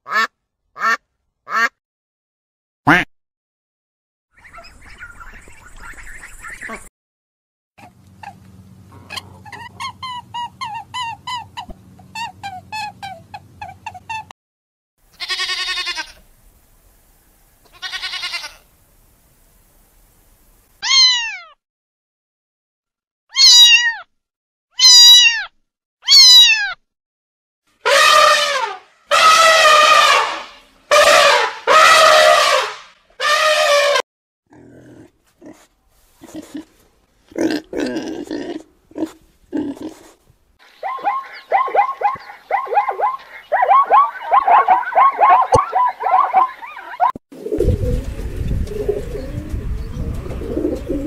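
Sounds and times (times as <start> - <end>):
pig grunting: 8.9 - 9.9, 34.5 - 40.2
sheep bleating: 15.1 - 16.2, 17.7 - 18.6
cat meowing: 20.8 - 21.6, 23.3 - 24.1, 24.8 - 26.8.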